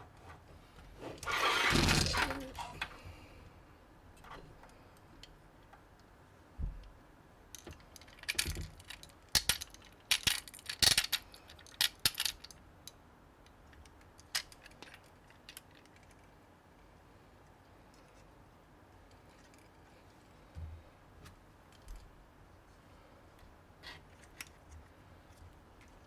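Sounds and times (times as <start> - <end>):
plastic bricks snapping together: 7.6 - 11.2, 11.8 - 12.4.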